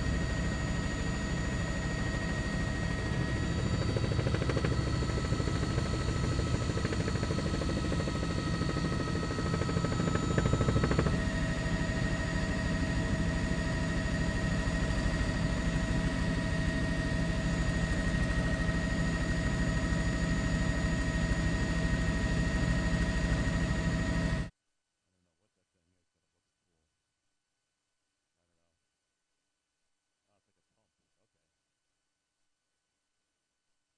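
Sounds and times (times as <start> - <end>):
helicopter engine whine: 0.0 - 24.5
helicopter rotor chop: 0.0 - 24.5.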